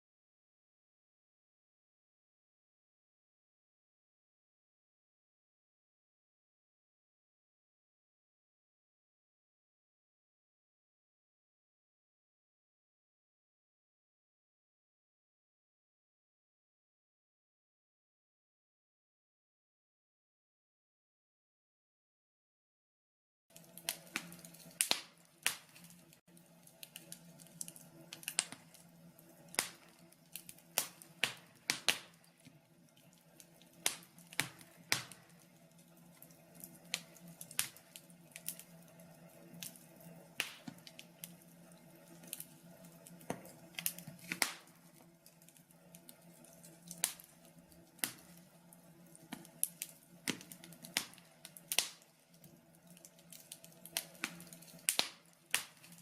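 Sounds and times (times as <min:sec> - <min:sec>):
logs crackling in a stove: 0:23.5 - 0:56.0.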